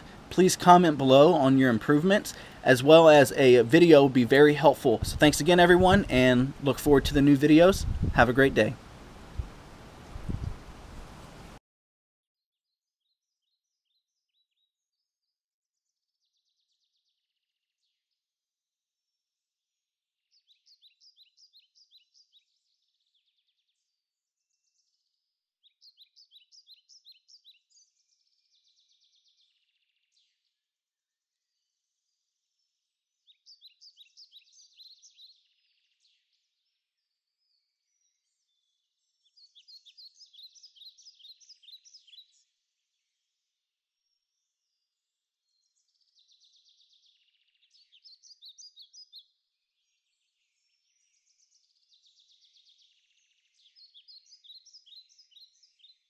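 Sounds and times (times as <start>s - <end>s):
soft bird chirps: 20.3s - 30.7s, 31.3s - 56.0s.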